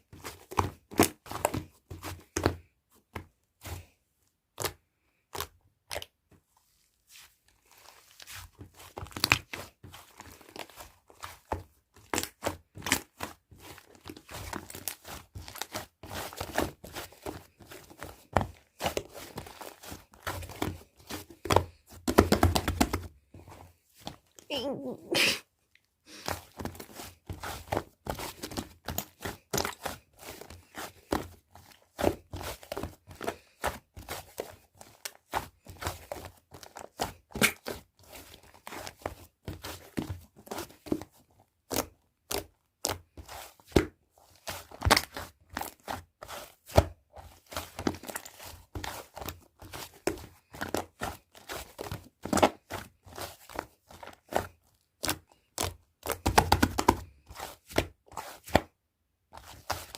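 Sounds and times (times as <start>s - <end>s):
slime squished by hand popping: 37.4s - 37.8s.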